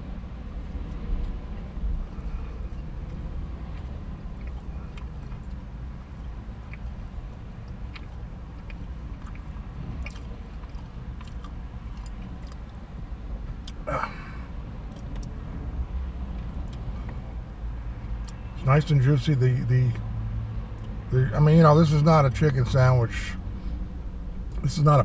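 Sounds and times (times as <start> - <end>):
low rumble inside car: 0.0 - 25.0
man chewing food: 2.0 - 12.8, 13.6 - 13.8.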